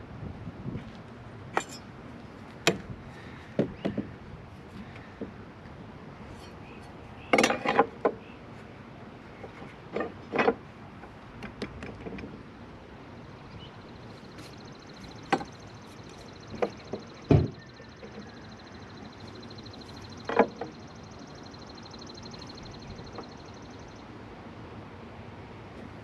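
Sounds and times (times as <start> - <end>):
hand tools and lumber knocking: 3.6 - 4.2, 7.3 - 8.2, 15.1 - 18.6, 20.1 - 20.8.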